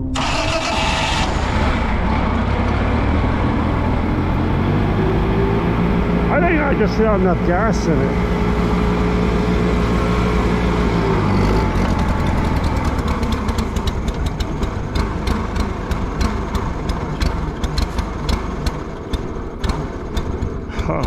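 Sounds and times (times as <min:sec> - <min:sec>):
tractor engine running unevenly: 0:00.0 - 0:21.0
engine crackling pops: 0:11.6 - 0:21.0.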